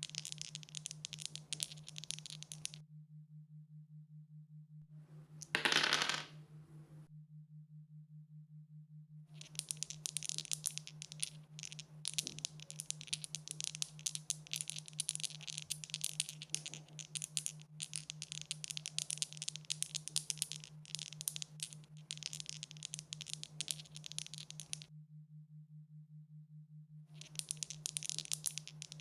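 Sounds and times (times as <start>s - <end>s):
dice rattling and clattering: 0.0s - 2.8s, 5.3s - 6.4s, 9.4s - 24.9s, 27.2s - 29.0s.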